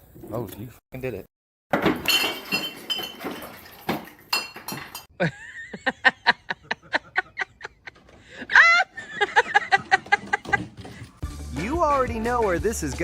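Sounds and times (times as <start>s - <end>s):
tableware clinking and clattering: 1.8s - 5.1s.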